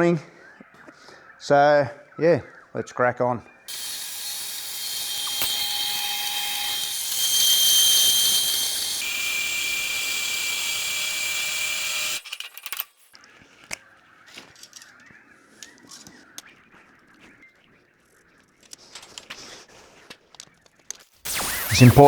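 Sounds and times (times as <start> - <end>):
angle grinder grinding steel: 3.7 - 12.8, 21.3 - 22.0.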